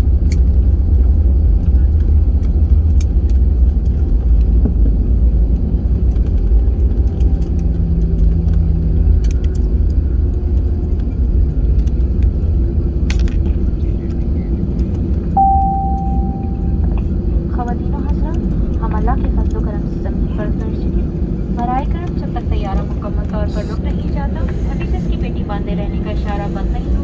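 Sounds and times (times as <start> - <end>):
aircraft cabin rumble: 0.0 - 27.0
short steady tone: 15.4 - 17.0.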